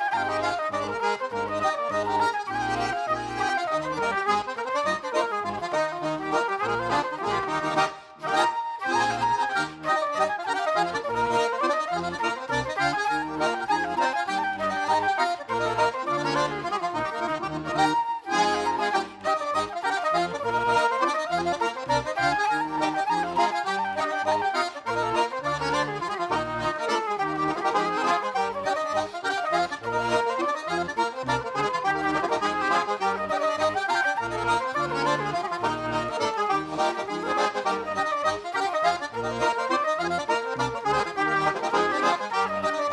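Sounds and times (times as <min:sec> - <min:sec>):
lively accordion folk music: 0:00.0 - 0:42.9.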